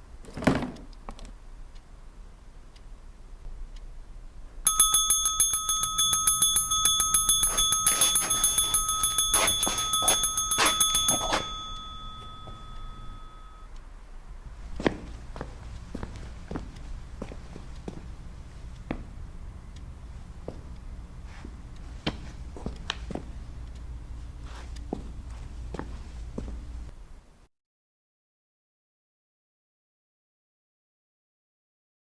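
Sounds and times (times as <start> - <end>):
electric telephone bell ringing: 4.7 - 13.7.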